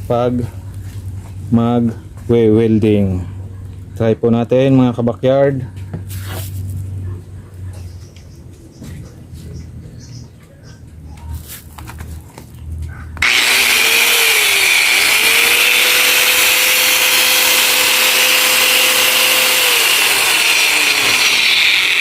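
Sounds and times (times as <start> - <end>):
angle grinder whining: 13.2 - 22.0.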